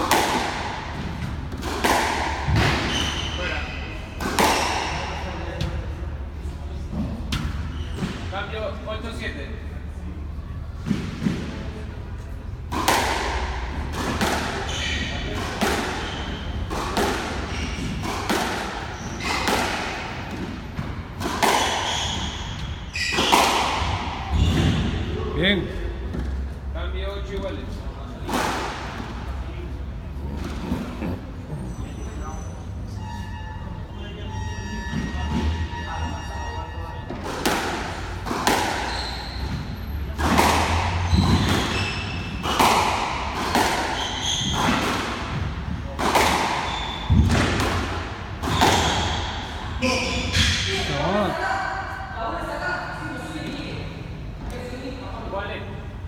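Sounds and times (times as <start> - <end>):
squash ball knocks: 0.0 - 3.1, 12.6 - 14.6, 46.0 - 49.1
squash ball hitting racket and walls: 0.0 - 8.8, 10.2 - 26.6, 27.3 - 51.5
shoe squeaks: 2.7 - 5.2, 7.5 - 8.4, 14.5 - 25.0, 30.2 - 37.4, 38.6 - 40.2, 41.0 - 42.7, 43.8 - 44.8, 46.6 - 47.4, 48.5 - 51.2.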